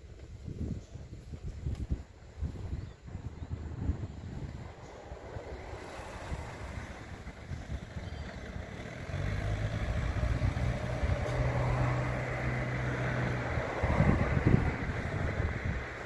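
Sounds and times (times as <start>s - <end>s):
wind rumble on microphone: 0.0s - 16.0s
truck engine humming: 4.6s - 16.0s.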